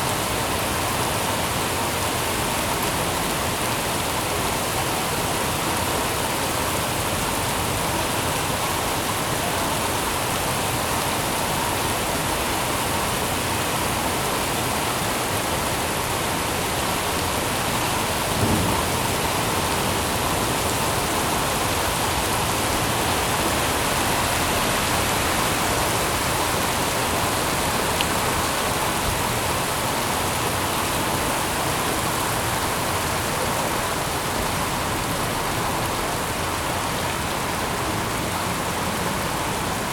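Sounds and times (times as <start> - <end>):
rain falling: 0.0 - 39.9
low thump: 18.3 - 19.2.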